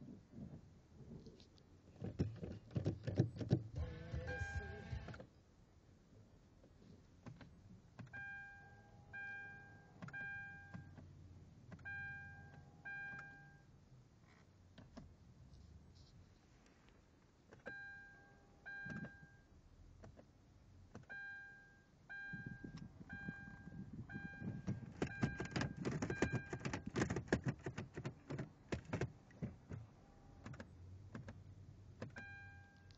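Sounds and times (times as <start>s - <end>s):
car warning chime beeping: 3.9s - 5.1s, 8.1s - 11.0s, 11.8s - 13.7s, 17.7s - 19.5s, 21.0s - 26.9s, 32.1s - 32.9s.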